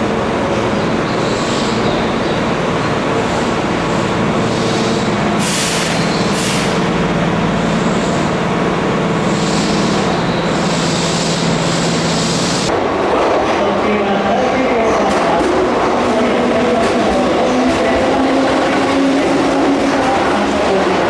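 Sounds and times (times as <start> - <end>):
electric train humming: 0.0 - 13.1
short hisses of air: 5.4 - 6.8.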